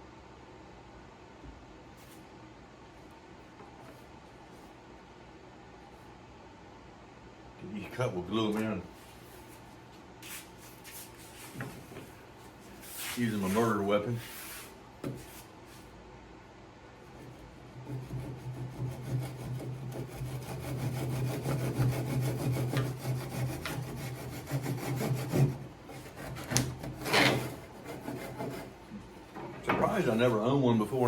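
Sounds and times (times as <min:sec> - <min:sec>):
hand saw cutting wood: 0:17.8 - 0:28.8.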